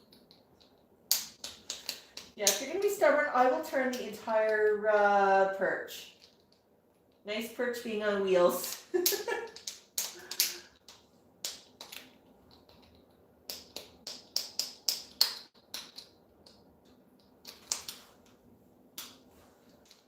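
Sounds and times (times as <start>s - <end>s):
sharp irregular clicks and taps: 0.0s - 2.7s, 9.0s - 18.4s.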